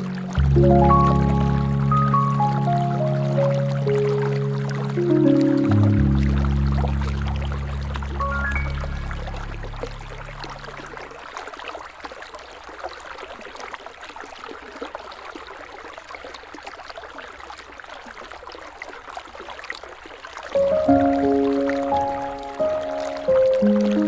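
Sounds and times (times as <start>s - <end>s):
musical chord: 0.0s - 11.1s, 20.6s - 24.0s
river water babbling: 0.0s - 24.0s.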